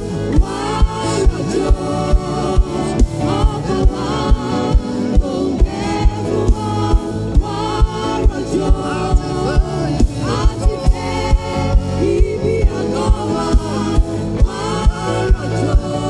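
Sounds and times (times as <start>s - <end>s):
choir singing with band: 0.0s - 16.0s
low thumping beat: 0.0s - 16.0s.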